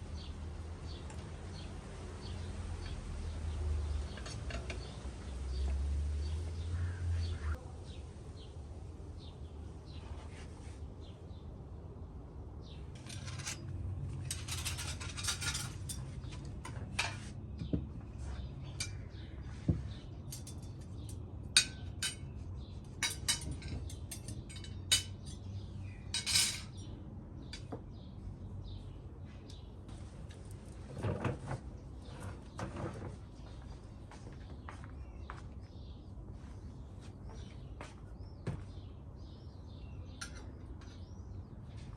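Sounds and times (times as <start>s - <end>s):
cutlery and dishes clinking: 13.0s - 17.3s, 20.2s - 22.3s, 23.0s - 25.5s, 26.1s - 26.9s.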